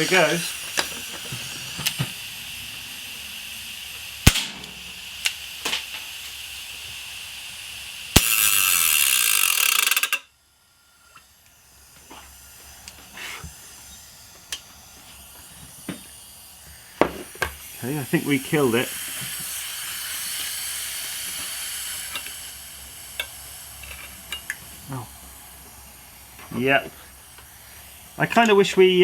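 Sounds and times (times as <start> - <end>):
steady hiss: 0.0 - 29.0
air pistol shots: 4.2 - 5.8.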